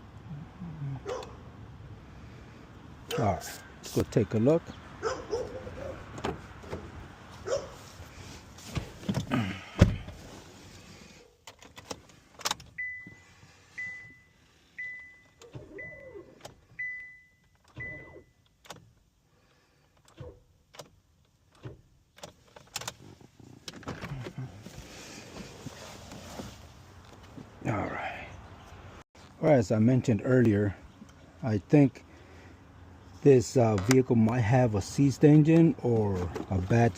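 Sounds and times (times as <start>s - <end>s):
car warning chime beeping: 12.7s - 18.5s.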